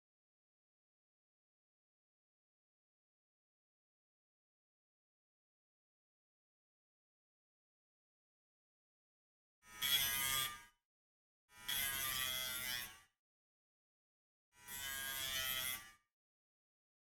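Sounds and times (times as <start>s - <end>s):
rotary tool grinding metal: 14.6s - 16.0s.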